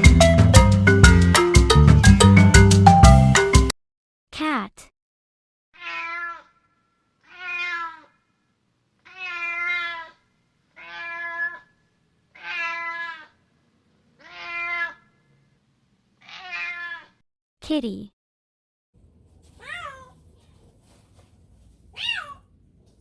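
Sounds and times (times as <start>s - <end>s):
cat meowing: 5.8s - 6.6s, 7.2s - 8.2s, 9.0s - 10.2s, 10.8s - 11.7s, 12.4s - 13.4s, 14.2s - 15.1s, 16.2s - 17.2s, 19.5s - 20.2s, 21.9s - 22.5s.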